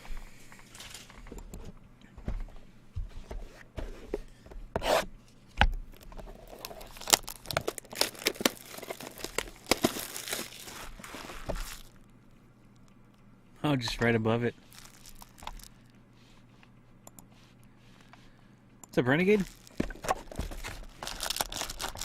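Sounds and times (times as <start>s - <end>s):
wrappers tearing and crinkling: 5.9s - 12.0s, 14.6s - 15.9s, 19.2s - 22.0s.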